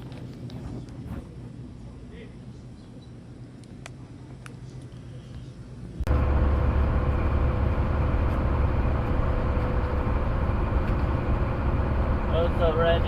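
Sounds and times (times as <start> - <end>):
truck engine and road noise: 5.8 - 13.0.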